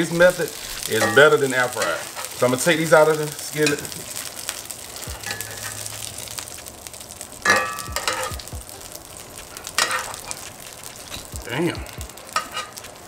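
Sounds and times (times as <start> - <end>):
food sizzling in oil: 0.0 - 13.0
metal tongs clinking on pan: 0.8 - 2.4, 3.1 - 4.0, 5.2 - 5.9, 7.4 - 8.4, 9.8 - 11.3, 12.2 - 13.0.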